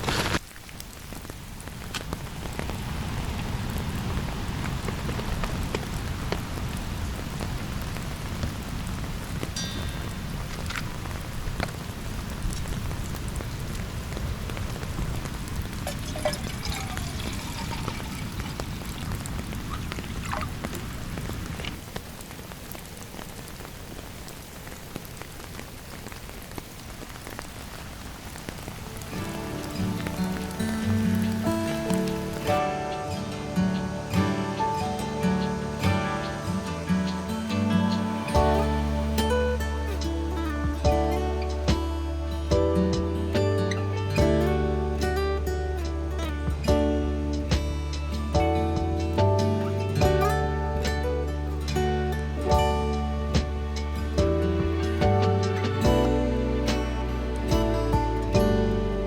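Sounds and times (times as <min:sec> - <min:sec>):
acoustic guitar music: 0:00.0 - 0:00.4, 0:01.2 - 0:21.8, 0:28.5 - 0:59.0
rain falling on a tent: 0:00.0 - 0:59.0
raindrops ticking: 0:00.0 - 0:59.0.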